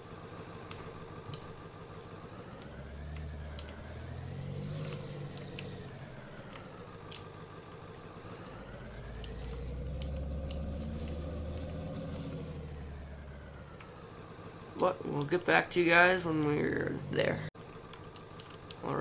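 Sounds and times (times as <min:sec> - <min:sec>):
road rumble: 0:00.0 - 0:19.0
pickup truck engine revving: 0:00.5 - 0:14.8
light clicks: 0:02.6 - 0:03.9, 0:09.2 - 0:12.4, 0:17.2 - 0:18.9.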